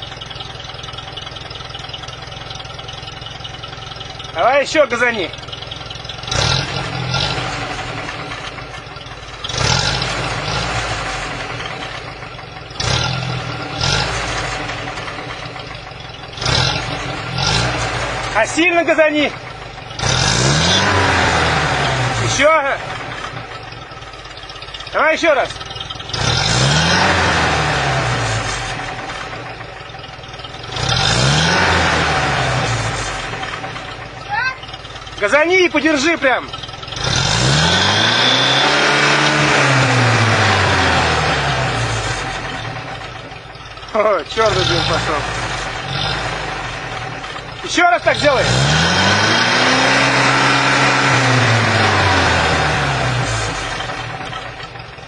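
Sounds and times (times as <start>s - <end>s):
engine idling and revving: 0.0s - 55.0s.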